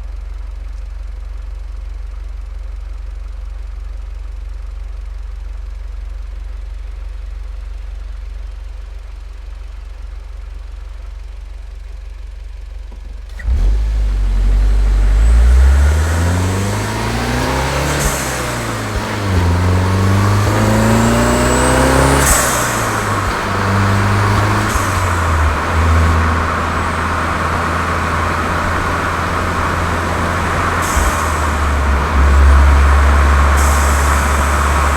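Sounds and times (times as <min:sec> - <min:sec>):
car engine idling and revving: 0:00.0 - 0:34.9
exhaust bursts on upshifts: 0:13.3 - 0:34.9.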